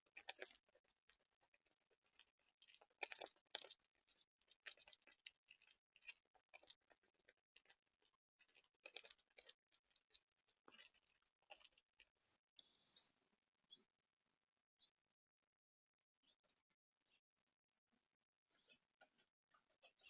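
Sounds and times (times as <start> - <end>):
animals scratching and crunching seeds: 0.0 - 13.2, 18.5 - 20.0.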